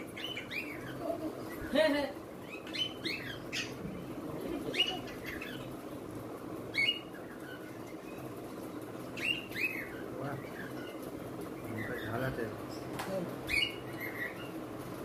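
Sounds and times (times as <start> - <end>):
birds chirping: 0.0 - 15.0
faint steady hum: 0.0 - 15.0.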